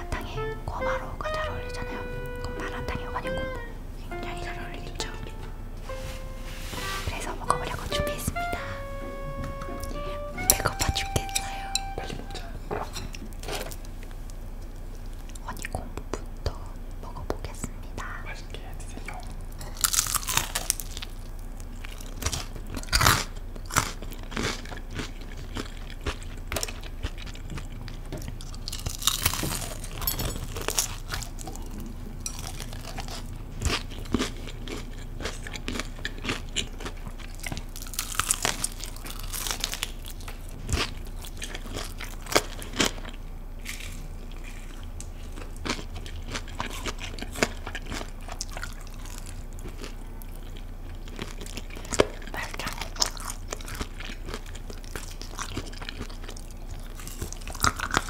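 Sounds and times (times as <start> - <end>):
crunching and chewing fried chicken: 19.0 - 58.0.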